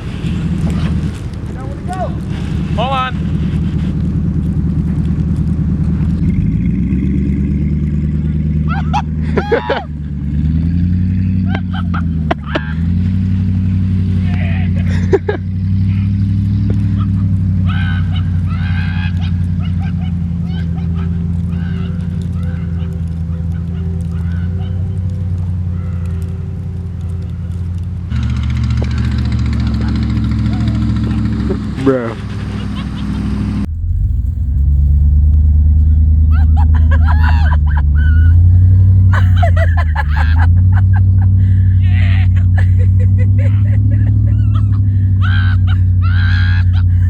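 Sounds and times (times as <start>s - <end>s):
indistinct voices: 0.0s - 6.2s, 33.6s - 47.0s
truck engine running under load: 0.0s - 47.0s.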